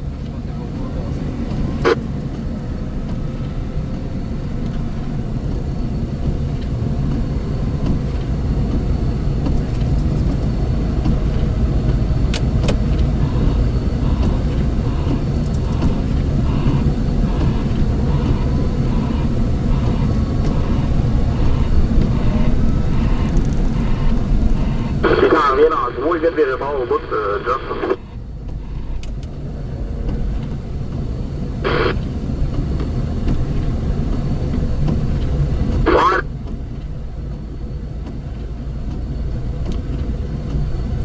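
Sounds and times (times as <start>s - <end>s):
heavy engine droning: 0.1s - 36.2s
faint beeps: 13.2s - 29.0s.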